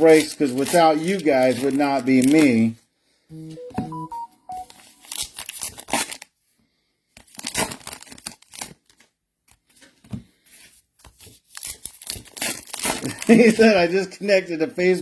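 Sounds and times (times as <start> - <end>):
card pack wrappers tearing: 0.0 - 2.7, 4.9 - 6.3, 7.2 - 9.0, 11.1 - 13.6.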